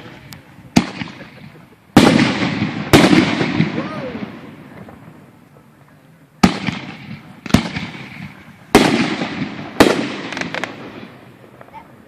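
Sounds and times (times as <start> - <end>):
firework shells bursting: 6.4 - 11.7.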